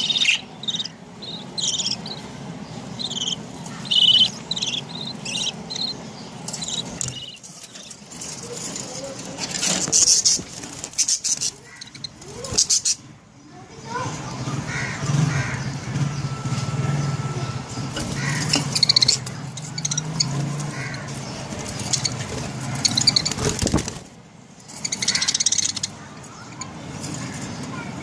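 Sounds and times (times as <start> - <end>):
budgerigars chirping: 0.0 - 13.1, 17.8 - 24.0, 24.7 - 27.4
steady low hum: 0.0 - 13.4.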